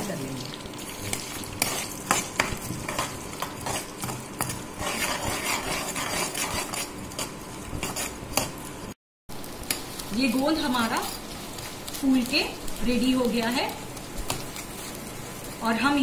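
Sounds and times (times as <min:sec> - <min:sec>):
gum sizzling in ghee: 0:00.0 - 0:16.0
metal spoon scraping a pan: 0:01.0 - 0:08.6.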